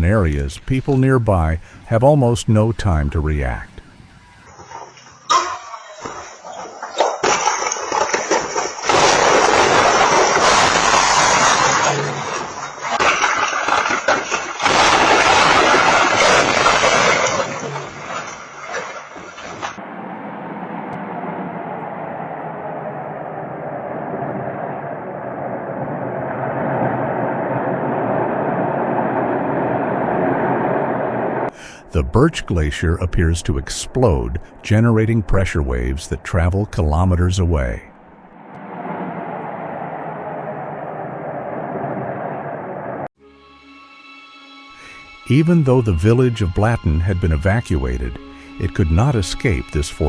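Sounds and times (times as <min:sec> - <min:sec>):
knocks and crashes: 0:04.6 - 0:19.8
tornado wind roaring: 0:14.6 - 0:32.0, 0:37.8 - 0:43.1.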